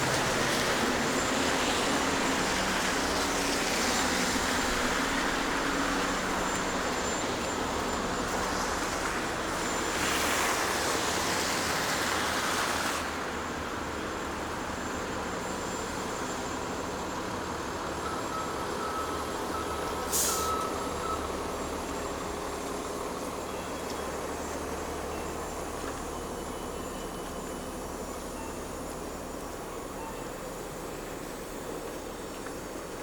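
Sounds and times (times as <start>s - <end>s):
low rumble of engines: 0.0s - 33.0s
air hiss from heavy vehicle: 19.9s - 20.9s
loud hiss: 20.1s - 20.6s.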